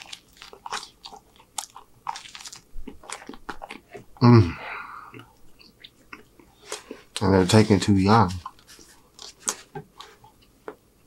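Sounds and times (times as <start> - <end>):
crunchy chewing of bread: 0.0 - 4.2, 8.4 - 10.7
man's short vocal sound: 4.2 - 4.8.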